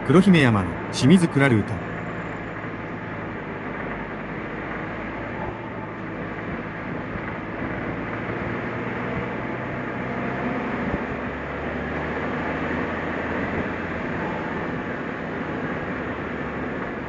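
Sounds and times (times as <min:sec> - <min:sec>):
car engine hum: 0:00.0 - 0:17.0
road noise: 0:00.0 - 0:17.0.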